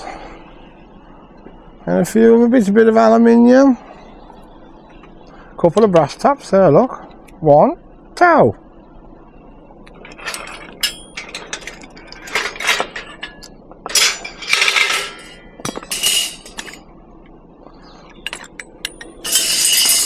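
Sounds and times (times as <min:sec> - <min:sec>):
scrap metal clinking and rattling: 0:09.9 - 0:16.8, 0:18.1 - 0:20.0
metal scraping: 0:10.0 - 0:16.8, 0:18.2 - 0:20.0.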